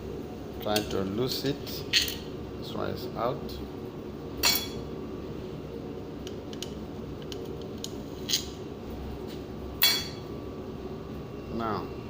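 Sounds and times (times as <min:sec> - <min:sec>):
steady background hum: 0:00.0 - 0:12.0
metal clink: 0:04.4 - 0:04.8, 0:09.8 - 0:10.2.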